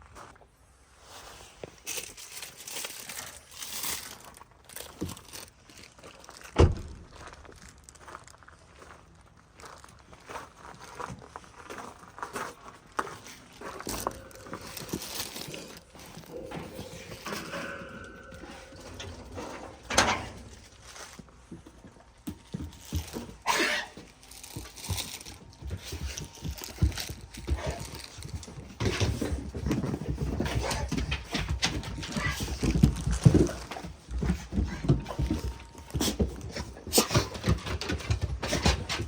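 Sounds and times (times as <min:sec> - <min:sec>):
dogs scuffing and shuffling: 0:09.8 - 0:39.0.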